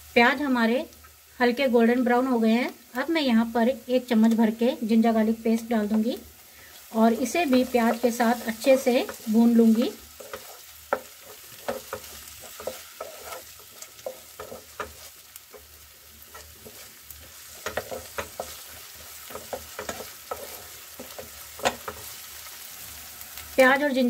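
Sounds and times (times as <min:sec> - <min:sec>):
food sizzling in hot oil: 0:00.0 - 0:24.0
spatula scraping and knocking pan: 0:07.1 - 0:22.5.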